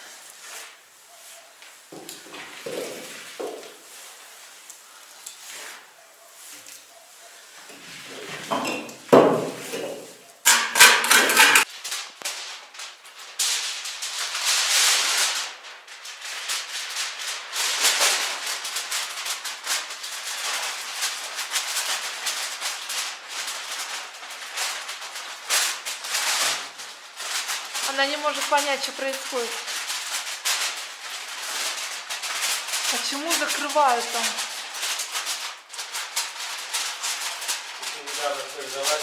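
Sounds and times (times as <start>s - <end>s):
rustling and crinkling: 0.0s - 39.0s
sharp knocks: 8.4s - 11.6s.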